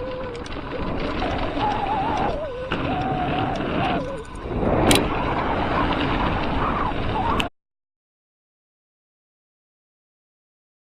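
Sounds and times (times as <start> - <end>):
bike rolling on trail: 0.0 - 7.5
wind noise: 0.0 - 7.5.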